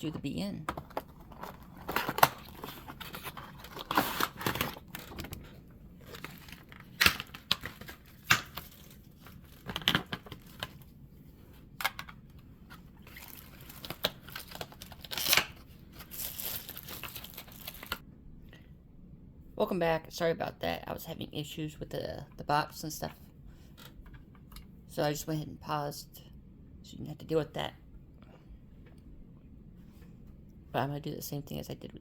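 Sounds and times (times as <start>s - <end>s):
packaging clicks and scrapes: 0.7s - 10.9s, 11.8s - 18.0s
packaging crinkling: 0.8s - 10.9s, 13.0s - 18.0s.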